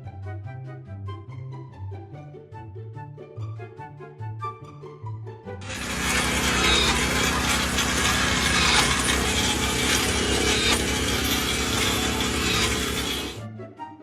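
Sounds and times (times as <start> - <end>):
power tool grinding: 5.6 - 13.4.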